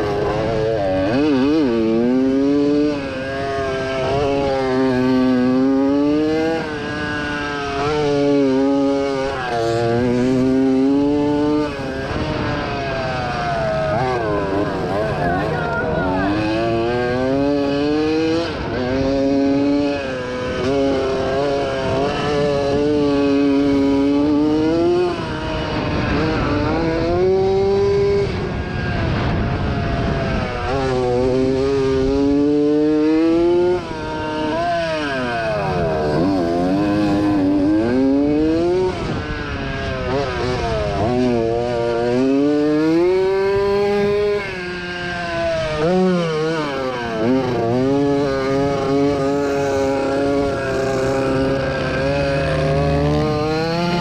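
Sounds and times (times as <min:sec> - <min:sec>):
motocross engine revving: 0:00.0 - 0:54.0.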